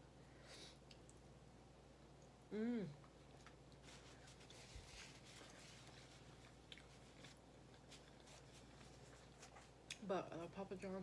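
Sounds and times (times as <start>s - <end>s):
low steady hum: 0.0s - 11.0s
faint chewing: 2.1s - 10.1s.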